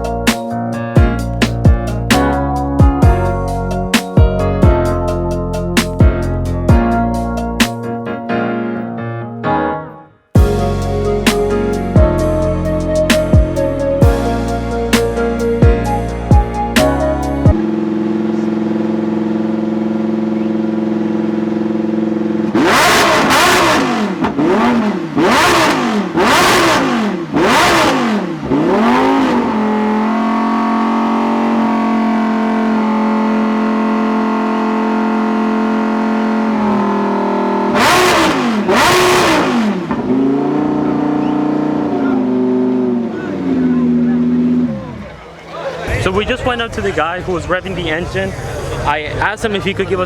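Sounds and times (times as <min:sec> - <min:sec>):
race car engine revving: 0:10.4 - 0:50.0.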